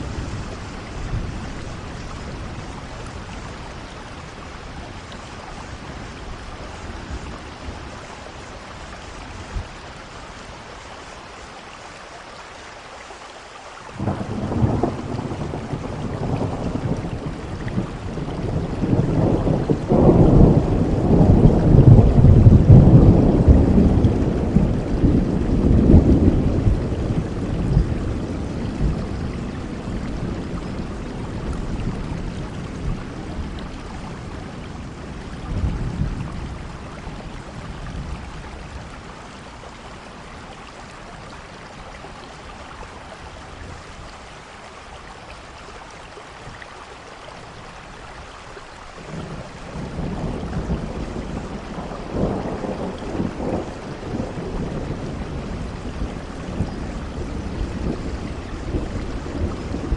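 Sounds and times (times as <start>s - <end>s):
steady rainfall: 0.0s - 59.9s
thunder rolling: 14.0s - 36.8s, 49.1s - 59.9s.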